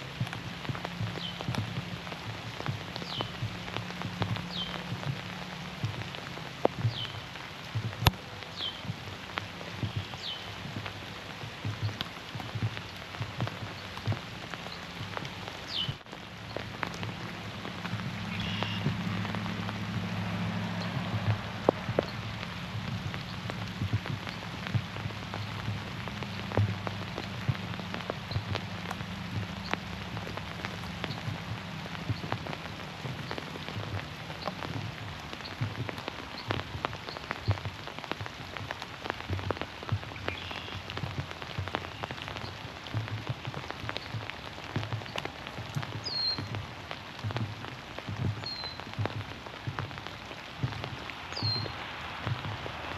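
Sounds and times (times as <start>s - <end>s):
rain falling through trees: 0.0s - 52.9s
raindrops tapping on surfaces: 0.0s - 52.9s.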